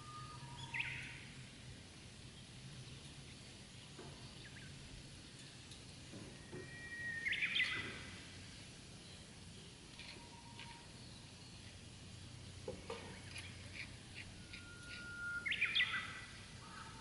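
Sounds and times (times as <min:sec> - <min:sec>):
bird calling: 0:00.0 - 0:01.3, 0:06.5 - 0:08.2, 0:13.1 - 0:17.0
faint background noise: 0:00.0 - 0:17.0.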